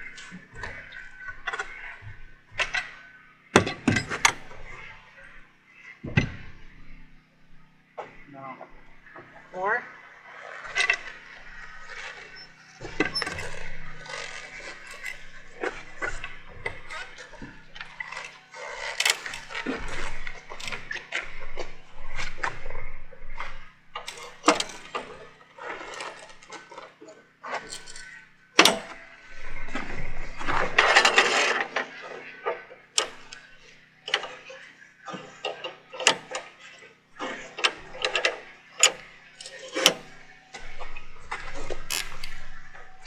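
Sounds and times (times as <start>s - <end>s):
objects clicking and clanking: 3.6s - 4.8s, 10.8s - 22.7s, 23.3s - 25.2s, 41.9s - 43.0s.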